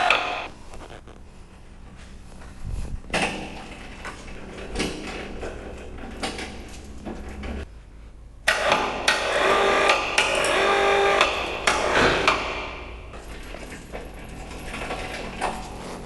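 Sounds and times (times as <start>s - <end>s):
metal knocks and clunks: 11.3s - 15.8s
metal clattering and banging: 11.4s - 16.0s.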